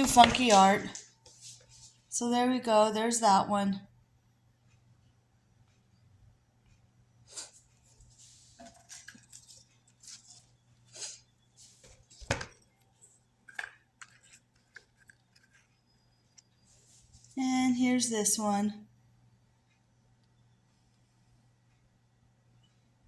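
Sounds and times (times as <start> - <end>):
craft pieces clicking on table: 0.0 - 1.0.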